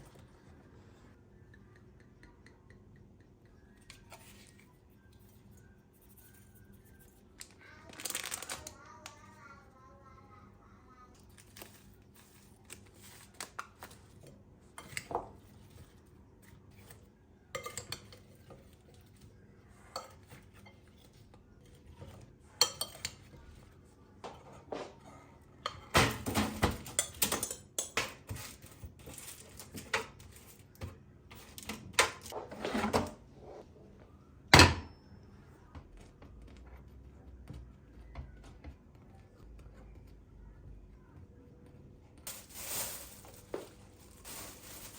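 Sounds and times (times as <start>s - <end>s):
dishes and cutlery clinking: 13.8s - 16.0s, 16.7s - 19.3s, 19.9s - 23.7s, 24.3s - 33.1s.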